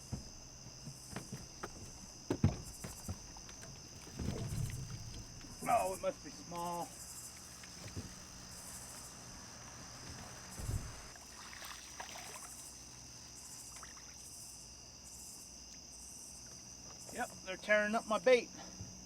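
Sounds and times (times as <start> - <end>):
low thump: 0.0 - 5.7, 10.1 - 11.1
insects droning: 0.0 - 19.0
pulsed insect calls: 0.0 - 19.0.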